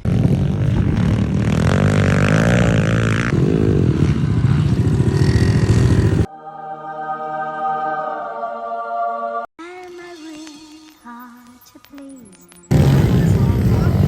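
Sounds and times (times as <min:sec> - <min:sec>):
pit bike engines revving: 0:00.0 - 0:06.3, 0:12.7 - 0:14.0.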